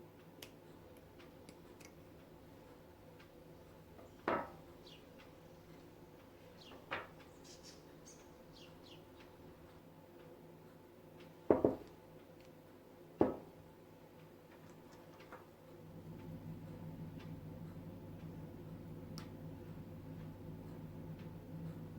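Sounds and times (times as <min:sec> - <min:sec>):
faint steady hum: 0:00.0 - 0:21.9
household objects knocking and clattering: 0:11.5 - 0:11.9, 0:13.2 - 0:13.5.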